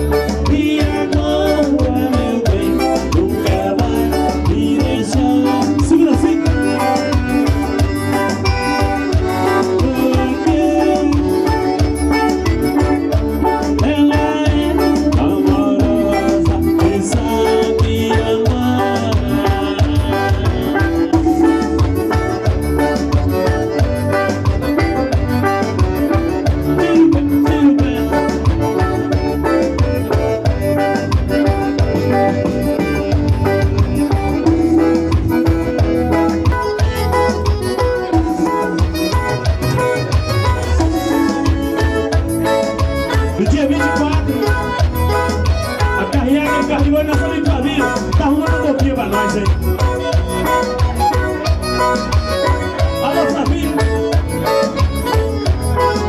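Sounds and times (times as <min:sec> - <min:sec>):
live band melodic notes: 0:00.0 - 0:56.0
steady drum beat: 0:00.0 - 0:56.0.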